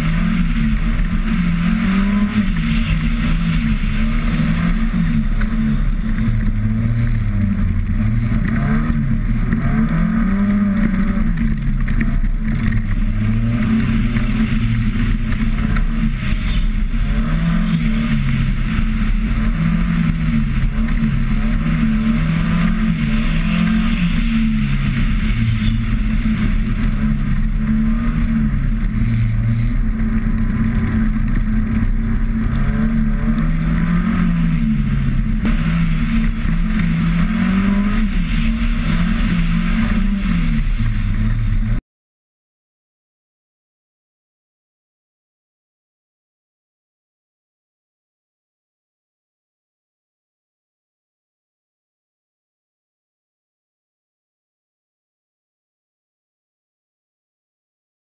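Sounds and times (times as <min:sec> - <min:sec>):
car engine revving: 0:00.0 - 0:41.8.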